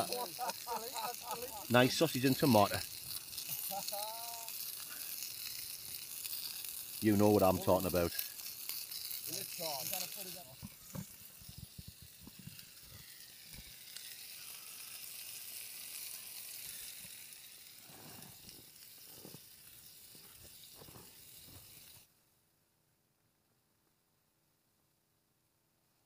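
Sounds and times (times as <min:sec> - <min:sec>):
food sizzling in a pan: 0:00.0 - 0:22.1.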